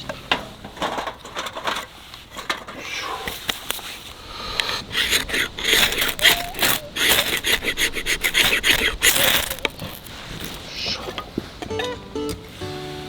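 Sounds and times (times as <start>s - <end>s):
hand tool rasping into wood: 4.4s - 11.1s.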